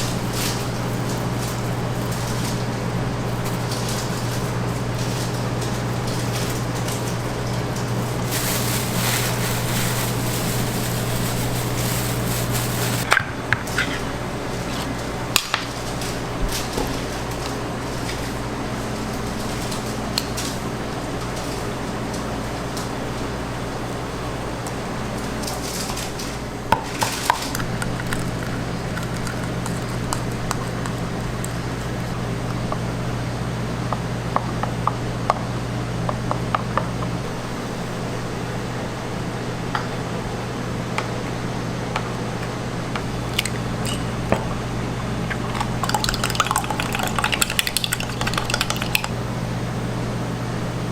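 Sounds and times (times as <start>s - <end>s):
kitchen utensils clinking: 0.0s - 17.2s, 43.3s - 44.7s
machine hum with hiss: 0.0s - 48.3s.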